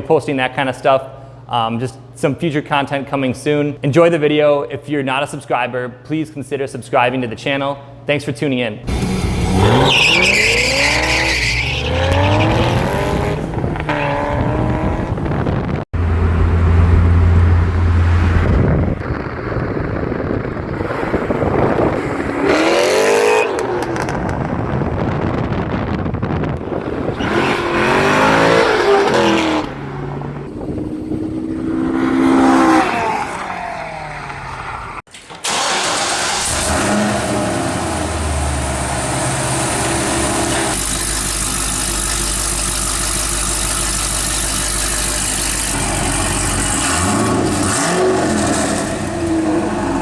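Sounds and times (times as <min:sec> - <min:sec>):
sports car engine revving: 0:08.9 - 0:19.1, 0:20.8 - 0:24.8, 0:26.6 - 0:35.0, 0:36.4 - 0:50.0.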